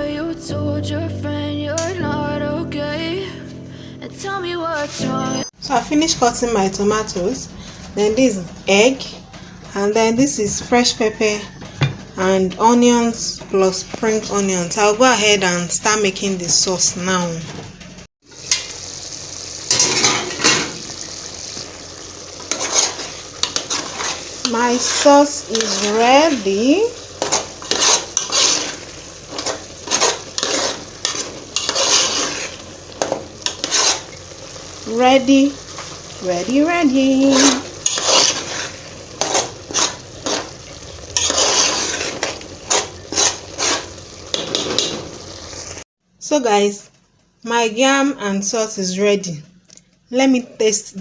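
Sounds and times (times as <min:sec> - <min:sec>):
frying sizzle: 0:18.0 - 0:45.9
spoon scraping a pan: 0:19.7 - 0:20.9, 0:22.4 - 0:34.4, 0:36.9 - 0:45.3.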